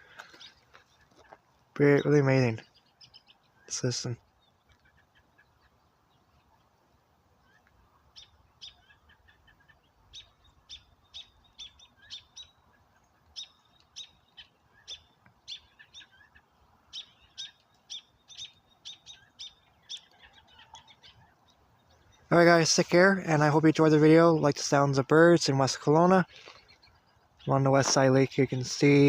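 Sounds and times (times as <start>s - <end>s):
songbird chirping: 0.0s - 29.0s.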